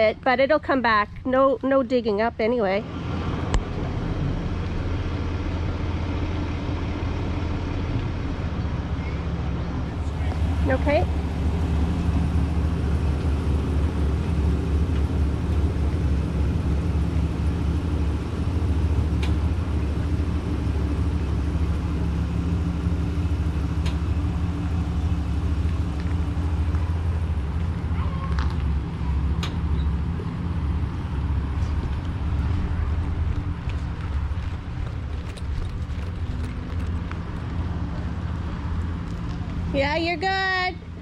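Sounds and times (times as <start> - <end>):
truck engine running: 0.0 - 41.0.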